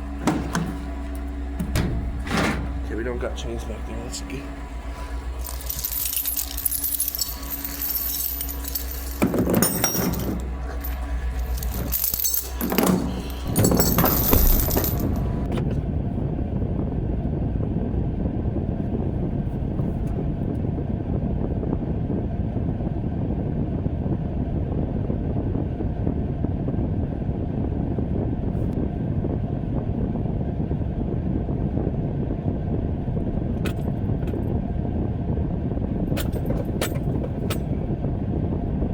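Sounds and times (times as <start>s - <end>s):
truck engine rumble: 0.0s - 23.0s, 26.8s - 38.9s
metal jangling and clanking: 0.2s - 4.2s, 5.0s - 15.5s, 36.1s - 37.8s.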